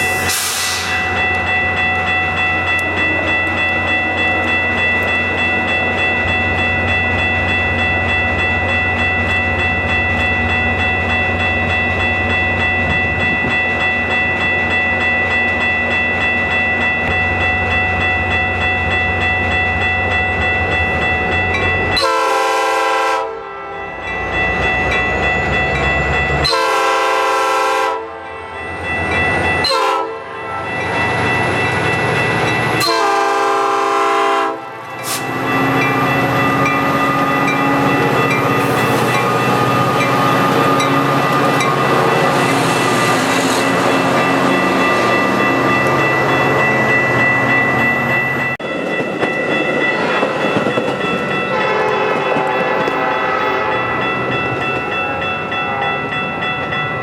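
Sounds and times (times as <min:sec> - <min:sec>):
train air horn blasts: 0:22.0 - 0:23.6, 0:26.4 - 0:28.2, 0:29.7 - 0:30.7, 0:32.8 - 0:35.4, 0:51.5 - 0:53.9.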